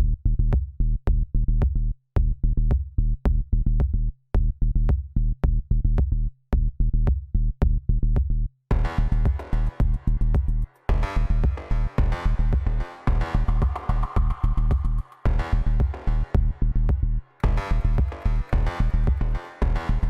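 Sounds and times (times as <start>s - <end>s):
electronic music with drum-machine beat: 8.7s - 20.0s.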